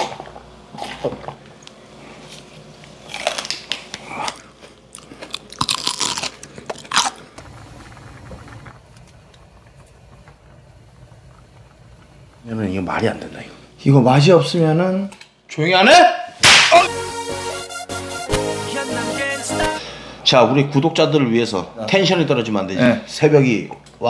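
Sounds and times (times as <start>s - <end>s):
crunching and chewing: 2.2s - 7.5s.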